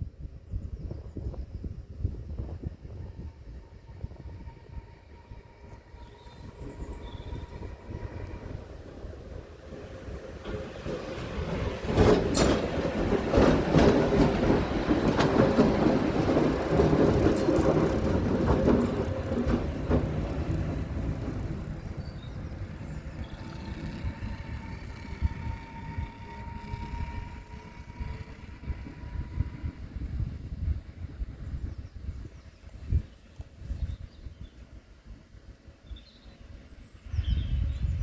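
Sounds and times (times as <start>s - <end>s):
electric locomotive passing: 1.6s - 32.0s
wheels clicking over rail joints: 10.2s - 21.9s.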